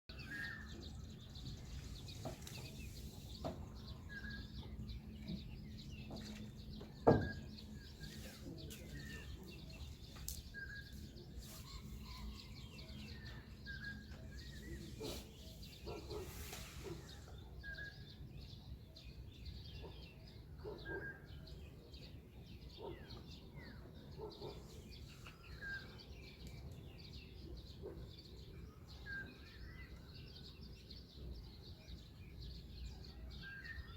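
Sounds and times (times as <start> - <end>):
faint bird chirps: 0.2 - 21.7.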